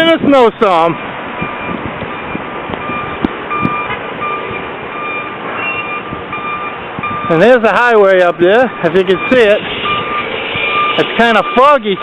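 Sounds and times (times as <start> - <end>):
steady background noise: 0.0 - 12.0
truck reversing alarm beeping: 1.4 - 12.0.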